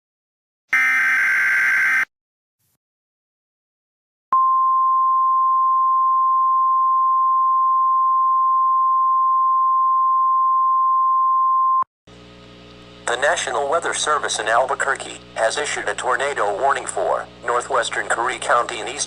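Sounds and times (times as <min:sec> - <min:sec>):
steady pure alarm beep: 0:00.8 - 0:02.1.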